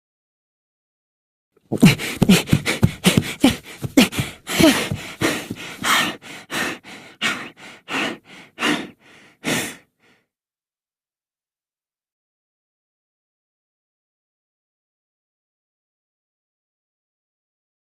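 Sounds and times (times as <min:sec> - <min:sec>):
short breathy voice sounds: 0:01.7 - 0:10.2.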